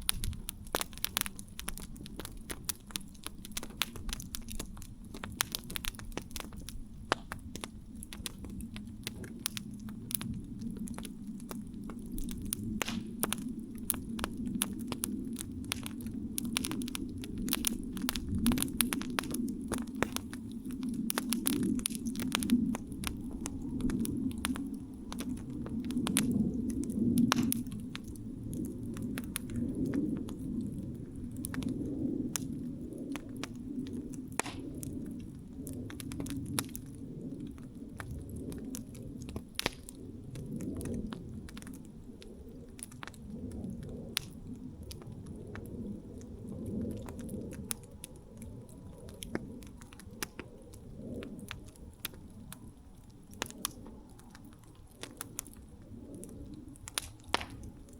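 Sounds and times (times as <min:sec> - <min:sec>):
campfire crackling: 0:00.0 - 0:57.9.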